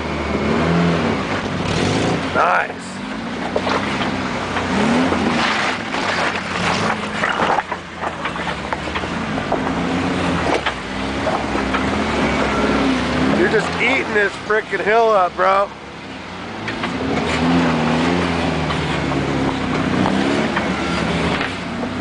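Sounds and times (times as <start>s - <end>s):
engine revving: 0.0s - 22.0s
tires knocking on rock: 3.4s - 14.1s, 16.6s - 22.0s.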